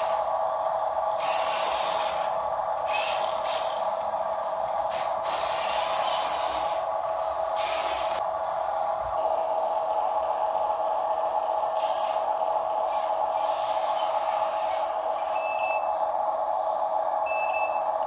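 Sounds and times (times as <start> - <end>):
toy truck electric motor whine: 0.0 - 0.4, 1.0 - 8.2, 12.9 - 15.7.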